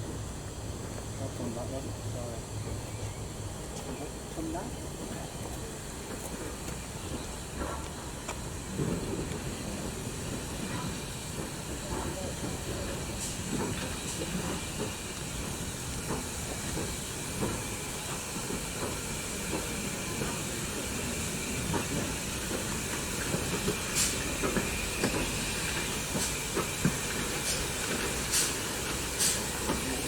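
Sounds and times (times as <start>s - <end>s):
steam locomotive hissing: 0.0s - 30.0s
sharp bursts of steam: 7.4s - 30.0s.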